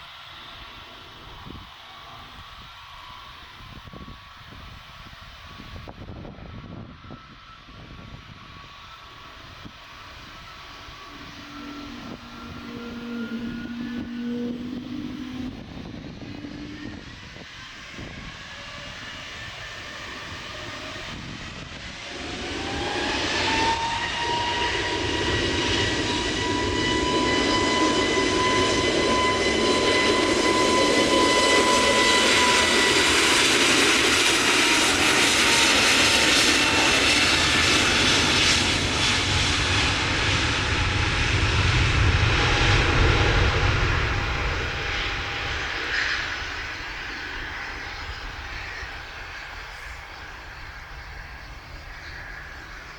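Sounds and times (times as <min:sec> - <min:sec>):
jet engines spooling up: 0:00.0 - 0:52.9.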